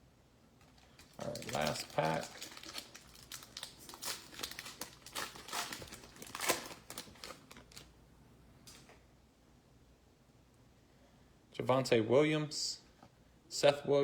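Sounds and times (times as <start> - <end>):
foil wrapper crinkling and tearing: 0.6 - 7.9.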